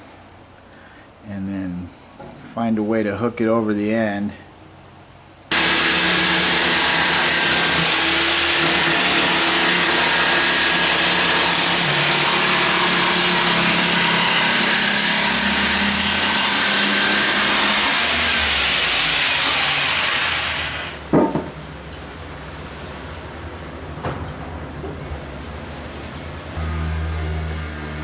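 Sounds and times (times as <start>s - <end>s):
motor running loudly: 5.5s - 21.0s, 26.6s - 28.0s.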